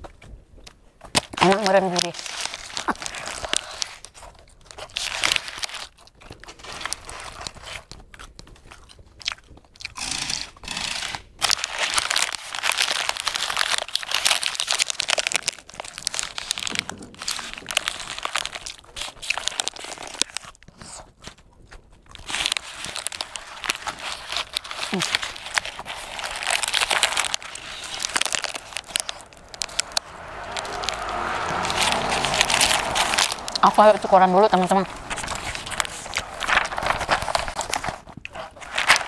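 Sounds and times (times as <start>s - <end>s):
crunchy snack chewing: 0.1s - 39.0s
paper tissue crinkling: 1.4s - 5.9s, 11.4s - 21.0s, 22.1s - 39.0s.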